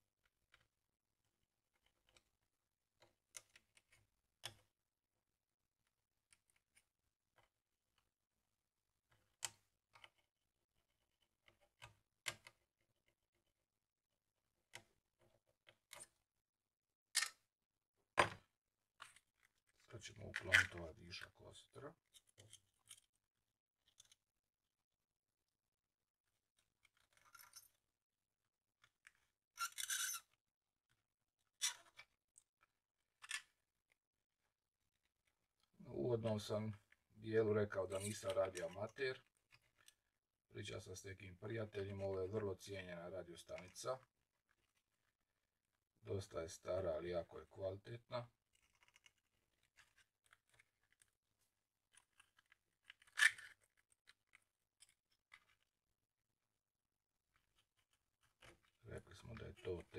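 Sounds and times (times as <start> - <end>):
solder scraping: 29.6 - 30.4.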